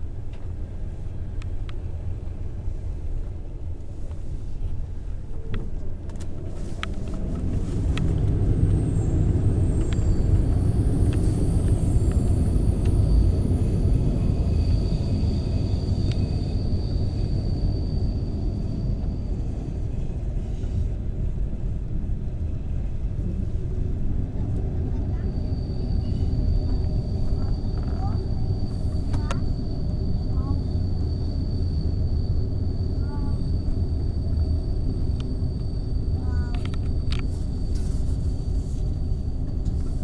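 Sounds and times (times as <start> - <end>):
train rumbling on rails: 0.0 - 40.0
thin high squeal: 25.2 - 34.4, 35.5 - 39.2.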